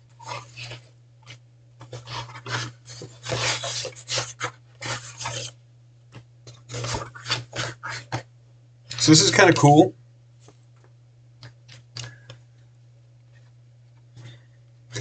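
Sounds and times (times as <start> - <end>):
packaging rustling and scraping: 0.2 - 5.6, 6.5 - 8.2.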